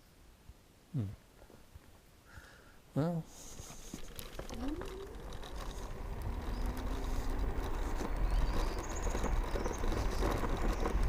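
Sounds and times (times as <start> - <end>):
wind and road rumble: 3.3 - 11.0
electric scooter motor whine: 3.8 - 11.0.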